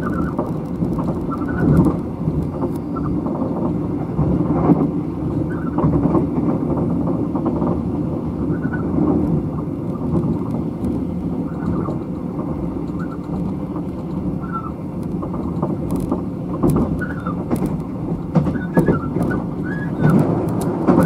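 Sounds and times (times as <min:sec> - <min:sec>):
train wheels rumbling on track: 0:00.0 - 0:21.0
clicks and knocks: 0:09.0 - 0:21.0
short squeaks: 0:16.9 - 0:17.6, 0:18.5 - 0:20.2.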